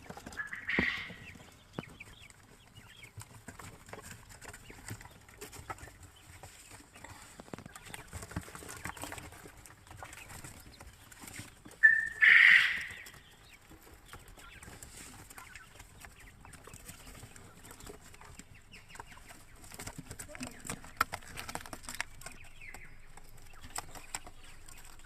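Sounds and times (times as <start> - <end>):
faint clicking and rustling: 0.0 - 11.8, 12.9 - 25.0
quail calling: 0.1 - 1.4, 11.8 - 13.5.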